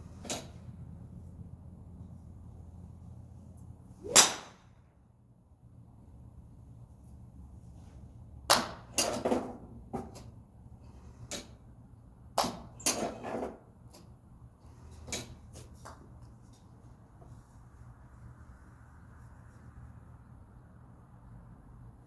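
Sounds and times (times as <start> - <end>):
low steady hum: 0.0 - 12.4
golf clubs striking balls: 4.0 - 4.7, 8.5 - 10.3, 12.3 - 14.1, 15.0 - 16.4.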